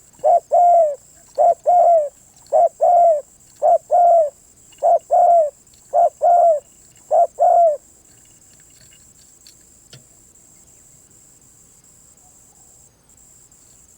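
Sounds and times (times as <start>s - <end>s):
dove cooing: 0.0s - 7.8s
high insect drone: 0.0s - 13.9s.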